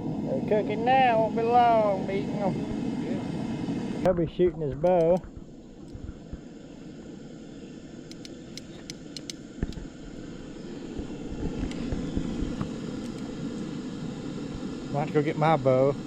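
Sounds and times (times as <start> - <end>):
gas burner rushing: 0.0 - 16.0
light ticks: 4.8 - 6.0, 8.1 - 9.8.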